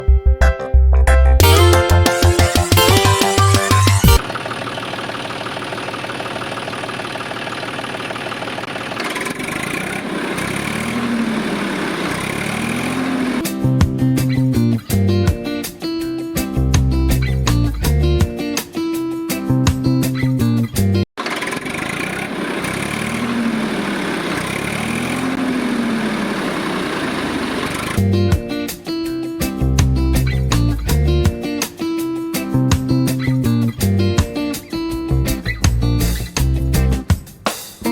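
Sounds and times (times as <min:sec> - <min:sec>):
guitar music: 0:00.0 - 0:04.2, 0:13.0 - 0:21.0, 0:28.0 - 0:37.1
small tractor engine ticking: 0:04.1 - 0:13.4, 0:21.2 - 0:28.0.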